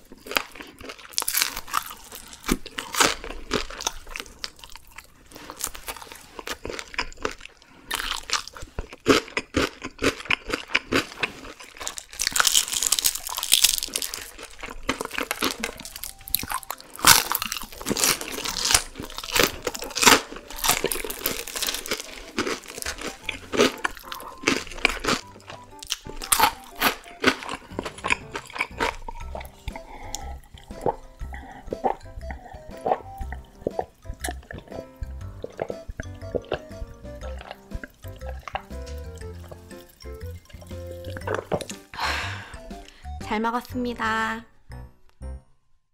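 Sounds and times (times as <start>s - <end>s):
crunching fried chicken: 0.0s - 41.9s.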